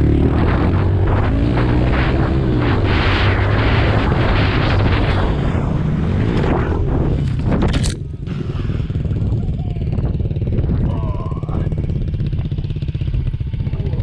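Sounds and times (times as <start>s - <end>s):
wind noise on microphone: 0.0s - 14.0s
small motorbike engine revving: 6.2s - 14.0s.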